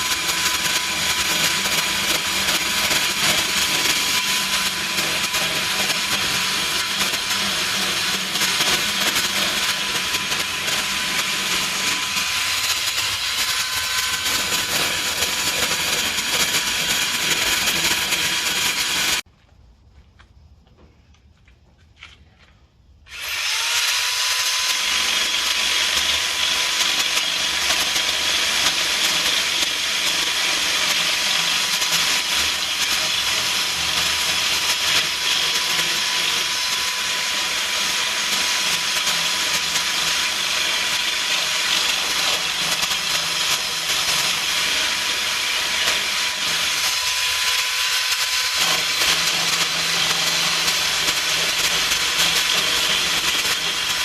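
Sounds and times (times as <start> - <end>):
power tool whining: 0.0 - 19.3, 23.1 - 54.0.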